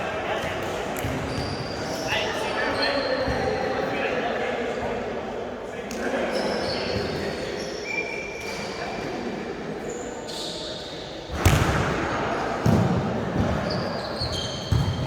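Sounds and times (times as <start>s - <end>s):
sneaker squeaks on court floor: 1.0s - 3.5s, 6.3s - 8.7s, 9.9s - 11.9s, 12.6s - 15.0s
volleyball struck hard: 11.3s - 12.0s.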